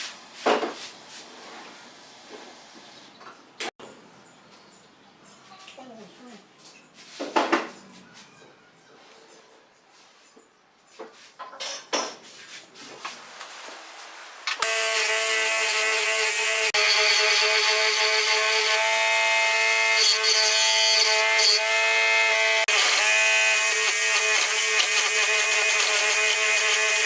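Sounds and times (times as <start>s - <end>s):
power tool whining: 14.5s - 27.0s.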